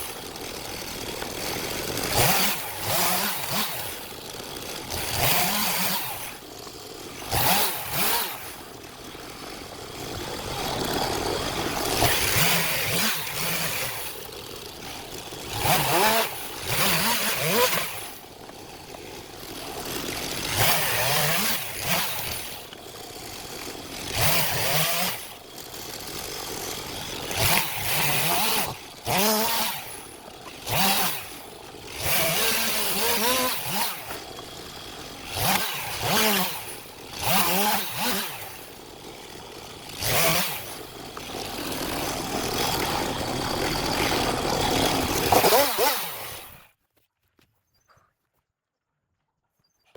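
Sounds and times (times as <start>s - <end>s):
chainsaw idling and revving: 0.0s - 46.8s.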